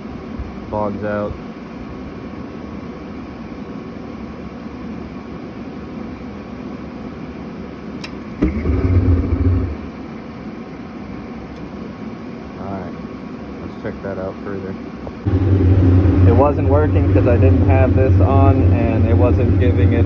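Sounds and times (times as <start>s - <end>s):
burner igniting with low rumble: 0.1s - 20.0s
click: 8.0s - 8.6s
furnace blower running: 8.0s - 20.0s.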